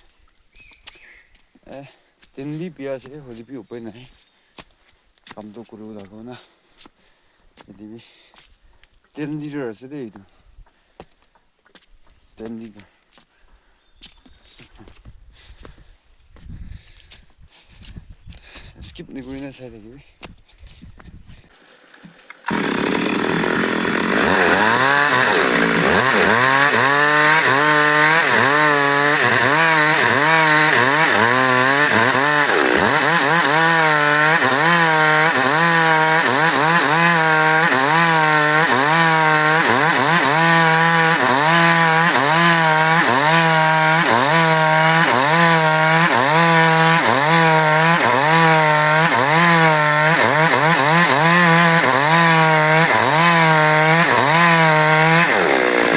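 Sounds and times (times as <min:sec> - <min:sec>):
chainsaw cutting wood: 0:21.5 - 0:55.9.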